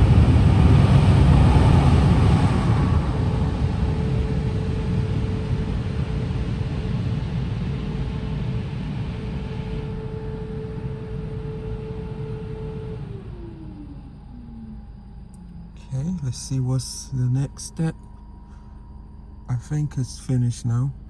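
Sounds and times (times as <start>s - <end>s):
constant whine: 0.0s - 21.0s
air dryer blowing: 8.5s - 16.3s.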